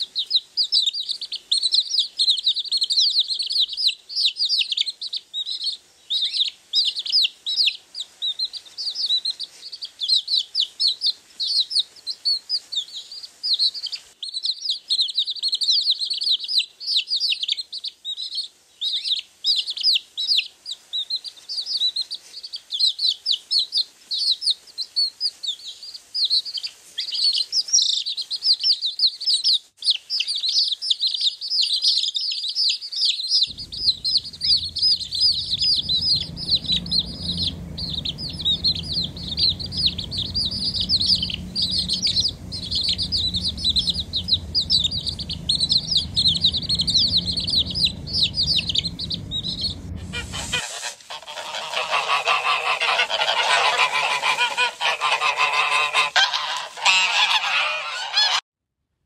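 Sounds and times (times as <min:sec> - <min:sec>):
low steady rumble: 0:33.5 - 0:56.1
waterfowl chicks peeping: 0:33.5 - 0:58.4.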